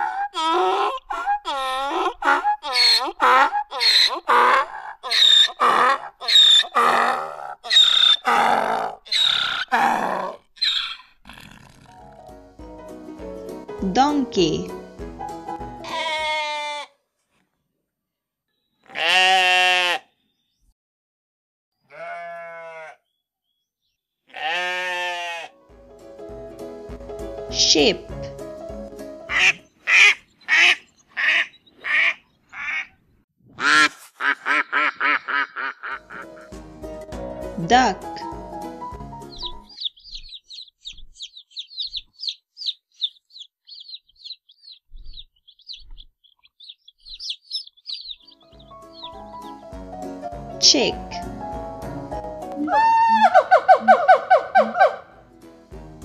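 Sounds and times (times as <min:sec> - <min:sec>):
chick peeping: 0:07.7 - 0:08.2, 0:39.2 - 0:49.6
sheep bleating: 0:15.8 - 0:17.0, 0:18.8 - 0:20.1, 0:21.8 - 0:23.1, 0:24.3 - 0:25.6.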